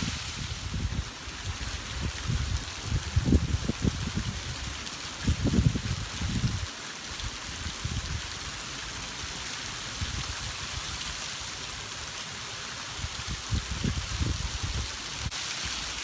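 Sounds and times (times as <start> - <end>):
wind buffeting microphone: 0.0 - 6.7, 13.1 - 15.3
heavy rain pouring: 0.0 - 16.0.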